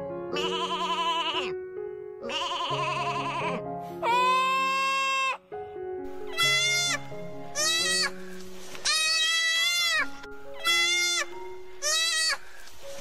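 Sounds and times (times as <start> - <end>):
soft background music: 0.0 - 13.0
animal bleating: 0.3 - 1.6, 2.2 - 5.4, 6.3 - 8.2, 8.8 - 12.5.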